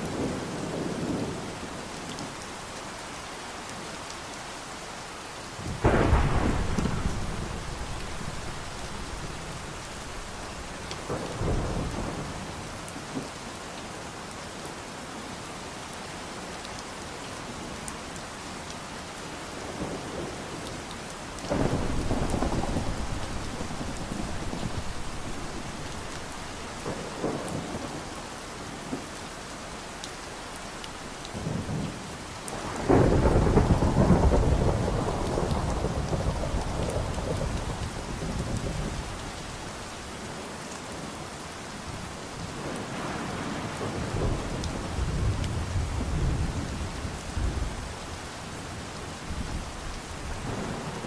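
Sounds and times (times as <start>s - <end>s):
steady rain: 0.0s - 51.0s
thunder rumbling: 5.6s - 12.6s, 21.5s - 28.0s, 32.6s - 40.0s, 41.9s - 48.0s.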